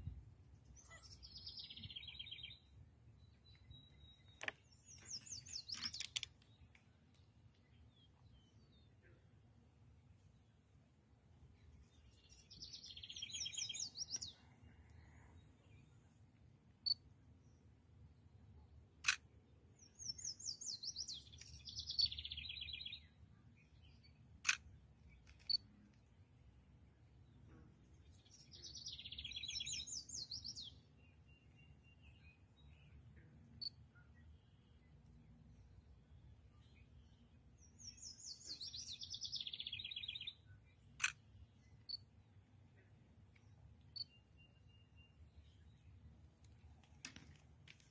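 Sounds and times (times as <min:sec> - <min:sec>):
songbird singing trilled notes: 0:00.8 - 0:08.9, 0:11.8 - 0:14.4, 0:19.8 - 0:25.7, 0:28.0 - 0:42.2, 0:43.4 - 0:47.4
sharp click: 0:24.4 - 0:24.7, 0:41.0 - 0:41.2
songbird trilling: 0:37.8 - 0:40.4.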